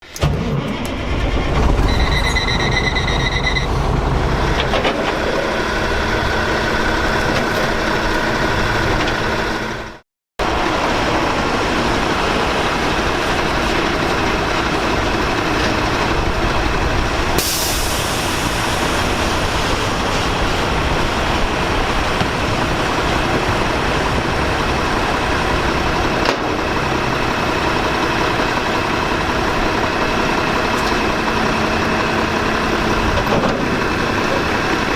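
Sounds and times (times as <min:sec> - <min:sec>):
garbage truck running: 0:00.0 - 0:34.9
short high whine: 0:01.6 - 0:04.5
air hiss: 0:17.4 - 0:19.9.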